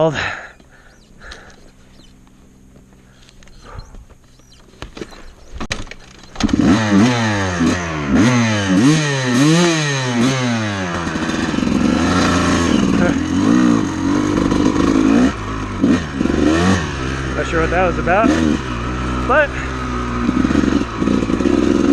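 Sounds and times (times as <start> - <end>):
dirt bike engine revving: 0.0 - 21.9
dirt bike kick start knocks: 2.7 - 6.8.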